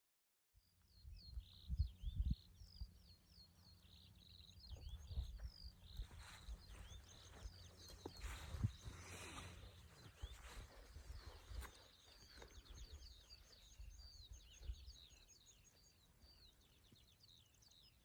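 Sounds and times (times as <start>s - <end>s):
songbirds chirping: 0.6s - 18.0s
wind rumble on microphone: 1.0s - 3.4s, 4.4s - 15.4s.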